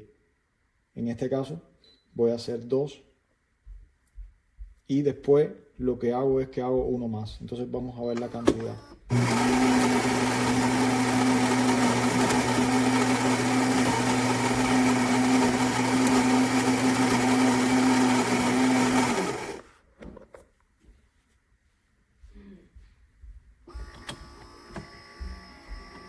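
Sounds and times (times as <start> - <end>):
coffee grinder grinding beans: 9.1 - 19.7.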